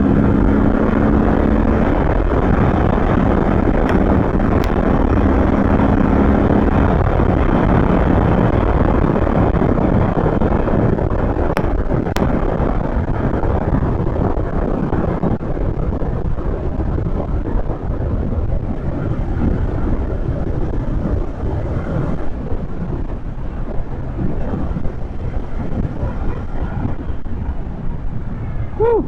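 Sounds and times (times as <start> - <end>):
motorcycle engine: 0.0 - 13.2
road noise: 0.0 - 29.0
wind buffeting microphone: 0.0 - 29.0.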